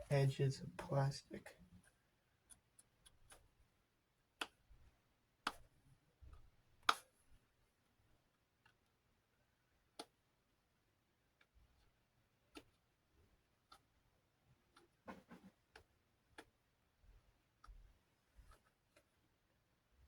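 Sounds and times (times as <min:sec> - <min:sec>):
faint clicks and taps on plastic: 0:01.8 - 0:03.7, 0:04.3 - 0:09.0, 0:09.9 - 0:10.3, 0:11.3 - 0:19.2.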